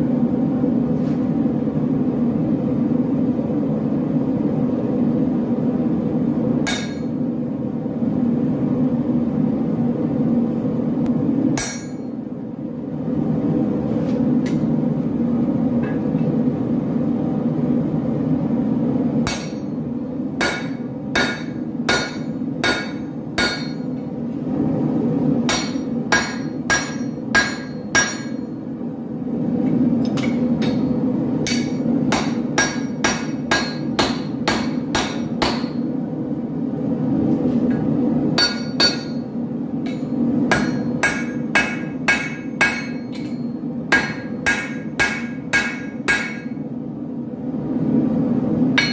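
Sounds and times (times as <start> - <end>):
hammer striking metal on anvil: 6.6 - 7.3, 11.6 - 12.3, 19.2 - 19.8, 20.4 - 24.1, 25.5 - 28.6, 30.1 - 35.9, 38.4 - 46.6.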